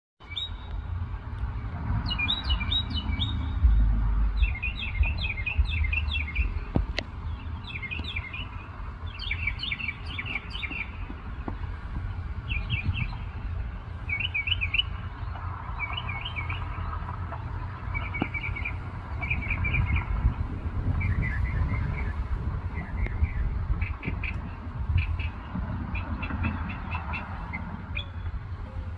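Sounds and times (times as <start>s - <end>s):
low rumble: 0.7s - 9.6s.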